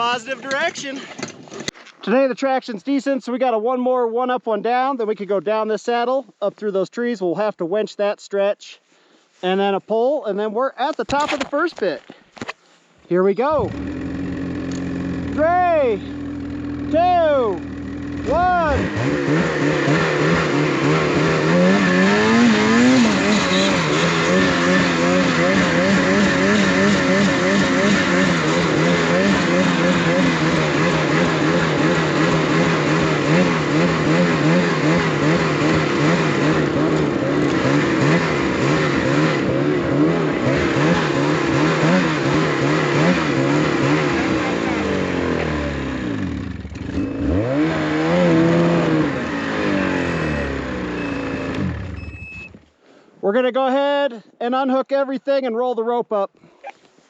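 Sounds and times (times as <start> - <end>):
engine running under load: 13.5 - 52.6.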